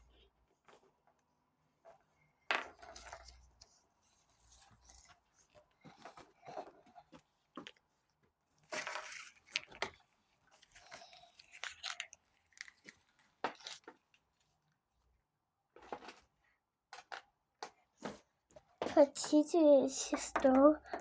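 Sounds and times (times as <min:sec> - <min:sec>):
plastic rustle: 0:02.6 - 0:14.6
plastic toys clicking and tapping: 0:16.9 - 0:21.0.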